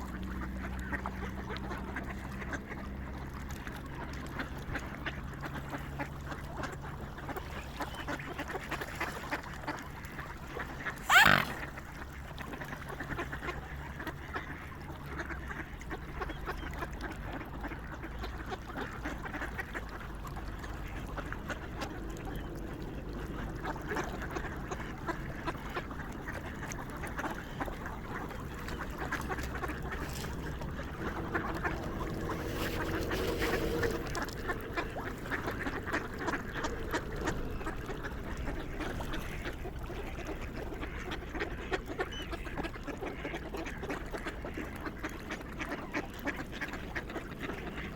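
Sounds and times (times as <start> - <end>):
low drawn-out swan call: 7.0 - 12.5, 18.2 - 47.9
swans chattering: 10.6 - 11.8, 21.6 - 41.2
loud swan call: 10.8 - 11.8, 27.5 - 39.4.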